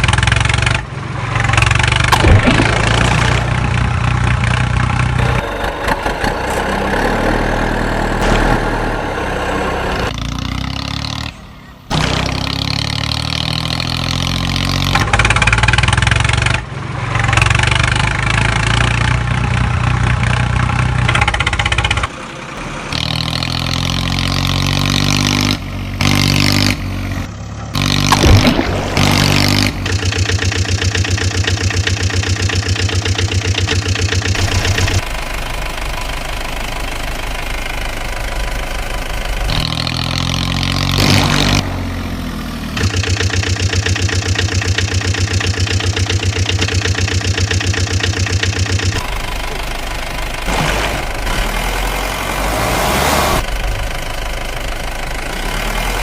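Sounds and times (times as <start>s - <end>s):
heavy vehicle engines revving: 0.0s - 56.0s.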